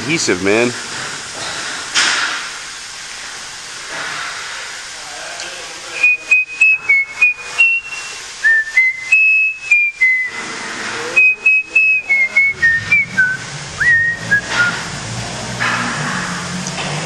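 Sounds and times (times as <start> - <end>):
person whistling a tune: 6.0 - 10.4, 11.2 - 14.8.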